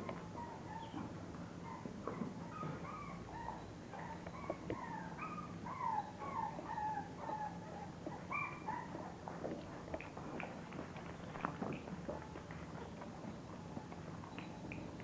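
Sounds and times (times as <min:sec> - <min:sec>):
puppies whimpering: 0:00.3 - 0:09.2.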